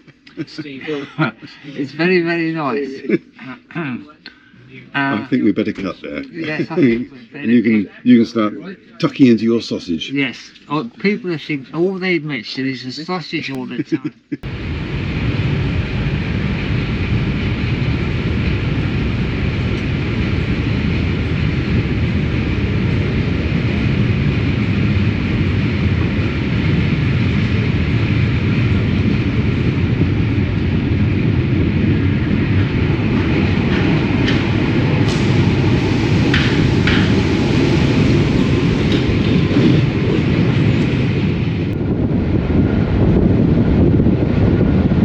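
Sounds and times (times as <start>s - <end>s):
train wheels rumbling: 14.4s - 45.0s.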